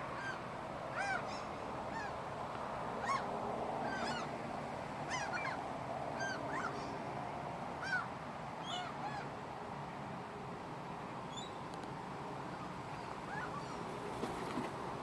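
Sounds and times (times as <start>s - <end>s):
steady background hiss: 0.0s - 15.0s
gulls calling: 0.2s - 2.2s, 3.0s - 4.4s, 5.0s - 5.6s, 6.2s - 7.0s, 7.8s - 9.3s, 12.6s - 13.9s.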